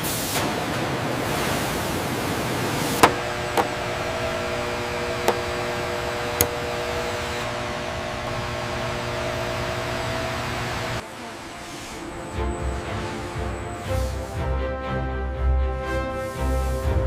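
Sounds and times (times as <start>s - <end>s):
sharp clicks or knocks: 3.0s - 4.0s, 5.1s - 6.7s
machine hum: 3.0s - 11.0s.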